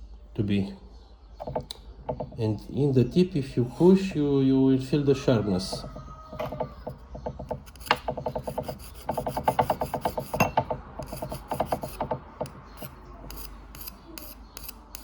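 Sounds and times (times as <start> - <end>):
sharpening stone rasping on steel: 6.4 - 15.0.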